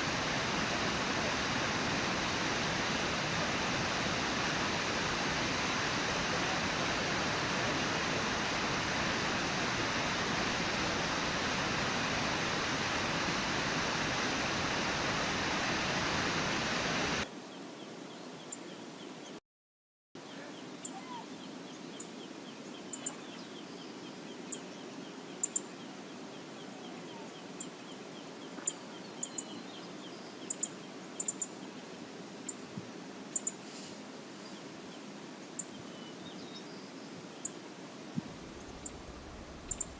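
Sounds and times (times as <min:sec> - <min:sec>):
waterfall rushing: 0:00.0 - 0:17.2
running water hiss: 0:00.0 - 0:19.1, 0:20.6 - 0:39.9
small birds chirping: 0:20.2 - 0:32.6, 0:33.3 - 0:33.8, 0:38.3 - 0:39.9.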